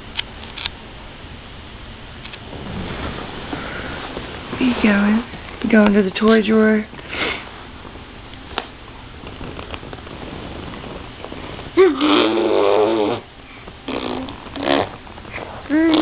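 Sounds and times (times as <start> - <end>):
soft rustling: 2.4 - 11.8.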